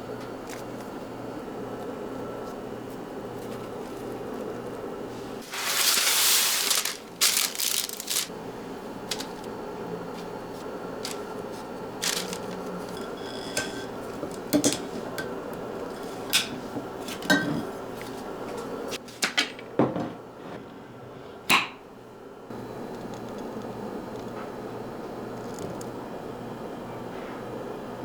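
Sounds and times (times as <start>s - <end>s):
kitchenware clinking: 12.0s - 17.8s.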